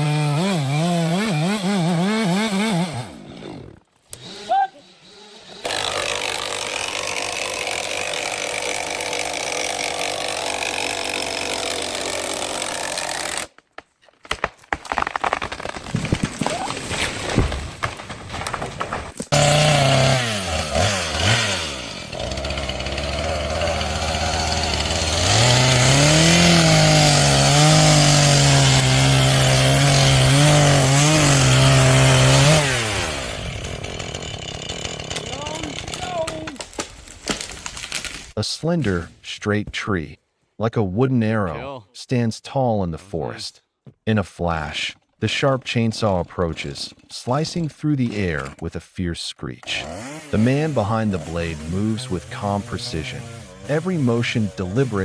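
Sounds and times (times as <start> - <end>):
chainsaw cutting tree trunk: 0.0 - 13.6, 14.2 - 38.4, 49.6 - 55.0
knocks and cracks: 13.5 - 19.4, 35.1 - 38.3.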